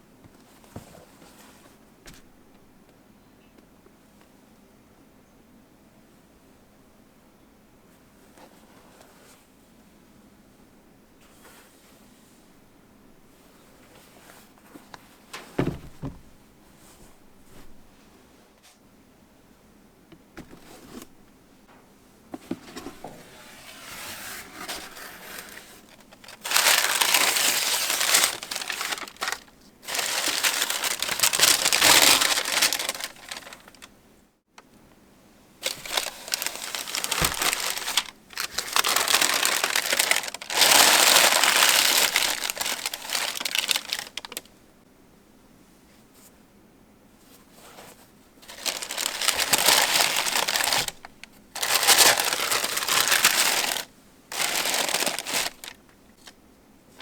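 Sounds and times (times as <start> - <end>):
paper crinkling and rustling: 22.4 - 33.9, 35.6 - 44.5, 47.5 - 56.4.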